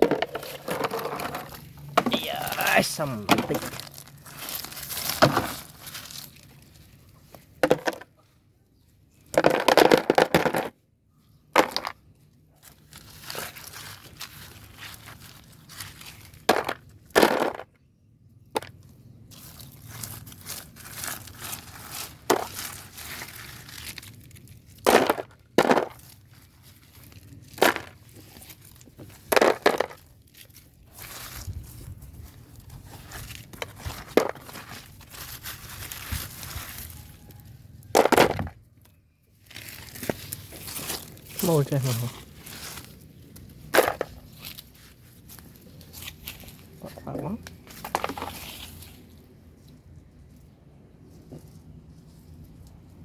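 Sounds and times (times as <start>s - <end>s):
plastic toy vehicles clattering: 0.0s - 8.3s, 9.2s - 10.8s, 11.5s - 17.8s, 18.4s - 31.0s, 32.5s - 37.0s, 37.8s - 42.1s, 42.9s - 44.6s, 47.1s - 49.0s.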